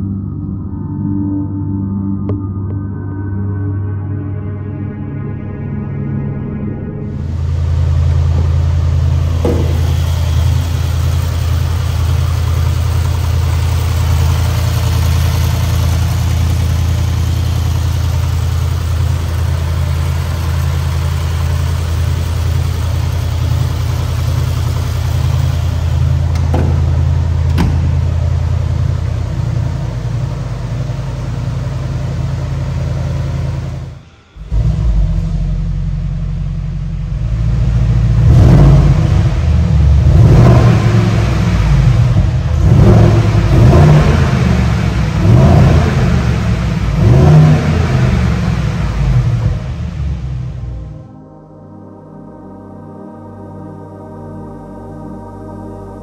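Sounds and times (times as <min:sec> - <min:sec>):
car engine idling and revving: 0:07.0 - 0:51.1.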